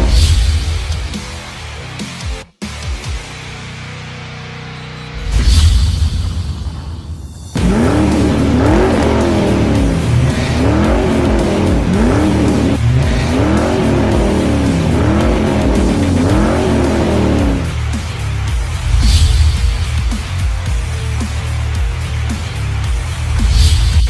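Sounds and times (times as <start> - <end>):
background music with bass: 0.0 - 24.0
sports car engine revving: 7.5 - 22.9.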